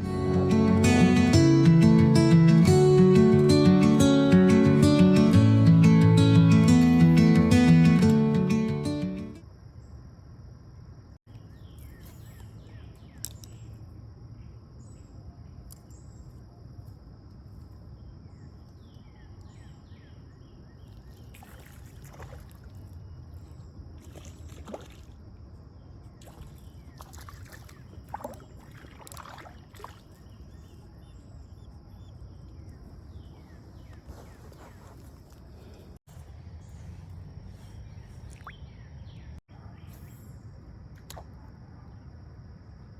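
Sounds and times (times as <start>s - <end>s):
small birds chirping: 11.3s - 16.5s, 17.5s - 25.0s, 25.6s - 41.1s
rushing creek water: 26.2s - 30.2s
sharp clicks or splashes: 26.2s - 30.2s, 41.0s - 41.4s.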